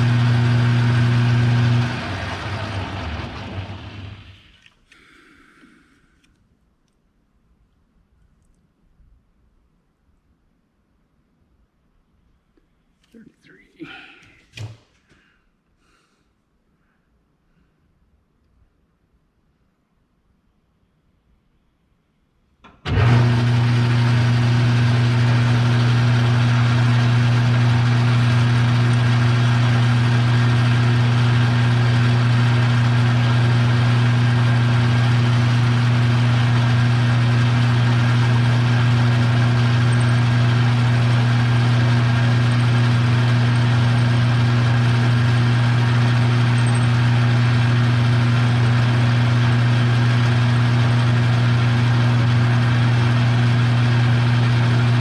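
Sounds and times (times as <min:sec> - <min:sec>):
electric machine tool humming: 0:00.0 - 0:04.4, 0:22.9 - 0:55.0.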